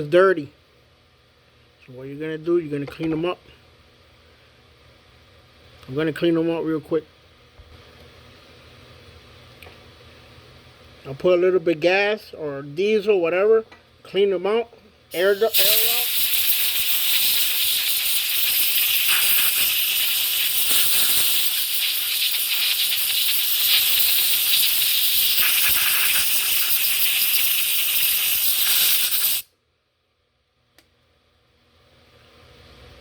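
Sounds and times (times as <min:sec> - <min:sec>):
air blowgun hissing: 0:15.1 - 0:29.5
small click: 0:30.7 - 0:30.9.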